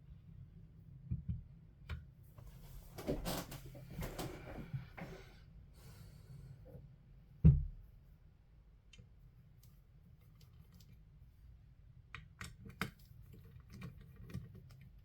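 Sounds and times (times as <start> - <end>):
rustling and scraping: 2.4 - 5.2.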